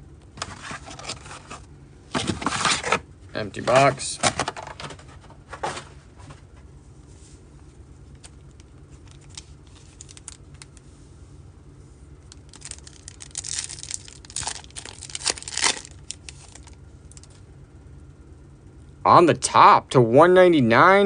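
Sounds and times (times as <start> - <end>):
wrapper tearing and crinkling: 9.1 - 10.4, 12.3 - 17.4.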